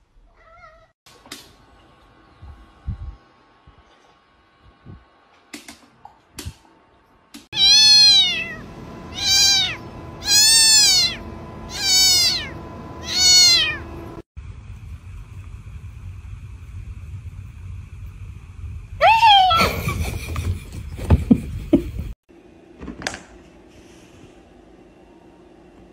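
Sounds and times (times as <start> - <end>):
cat meowing loudly: 7.6 - 13.8.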